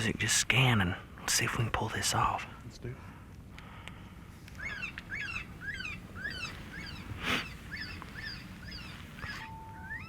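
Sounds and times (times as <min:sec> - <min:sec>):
low wind rumble: 0:00.0 - 0:10.0
electronic predator call squealing: 0:04.6 - 0:10.0.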